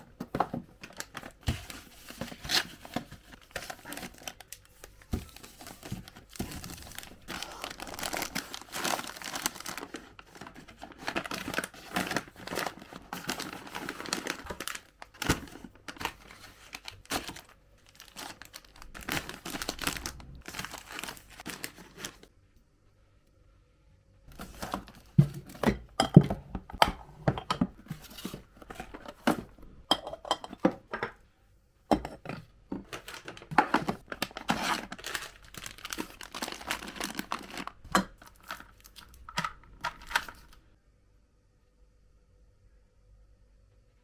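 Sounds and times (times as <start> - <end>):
packaging crinkling and tearing: 0.8 - 22.3, 24.3 - 25.6, 32.8 - 40.6.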